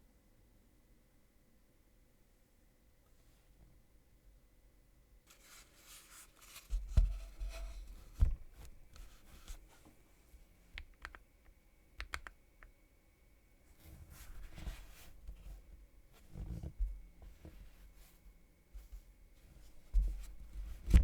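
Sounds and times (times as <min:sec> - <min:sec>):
sharp keyboard clicks: 0:10.8 - 0:11.2, 0:12.0 - 0:12.4.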